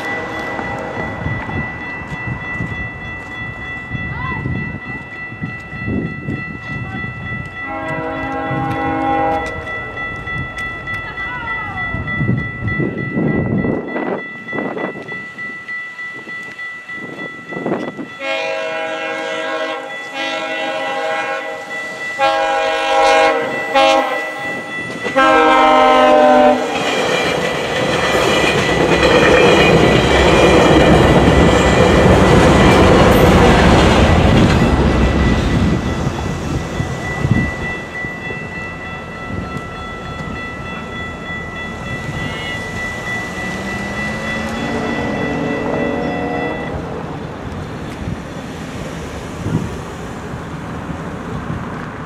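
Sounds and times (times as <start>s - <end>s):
crossing bell ringing: 0.0s - 51.8s
train rumbling and clattering past: 0.0s - 52.0s
train air horn blasts: 7.6s - 9.7s, 18.2s - 26.8s, 43.4s - 46.8s.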